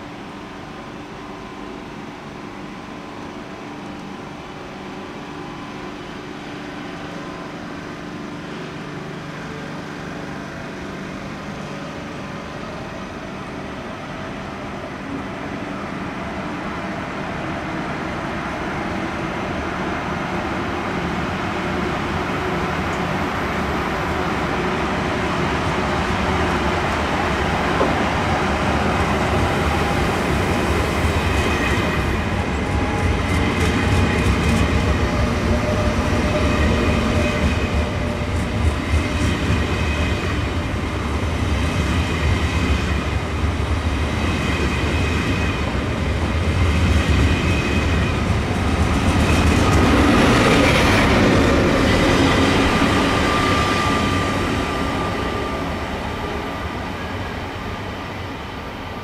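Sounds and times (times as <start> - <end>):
train cars rumbling: 21.5 - 59.0.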